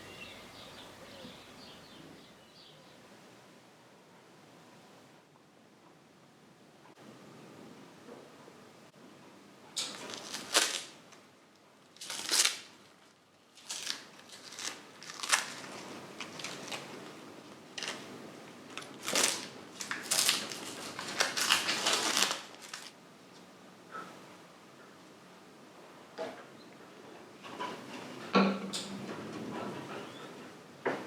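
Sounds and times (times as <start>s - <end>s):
scrapes and rustles: 12.0s - 24.1s.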